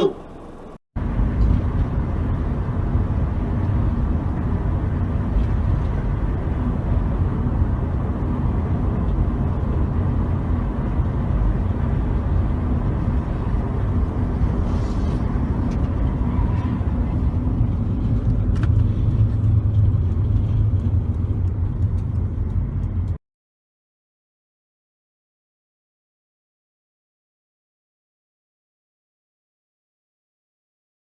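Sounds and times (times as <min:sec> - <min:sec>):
car driving road noise: 0:00.0 - 0:23.2.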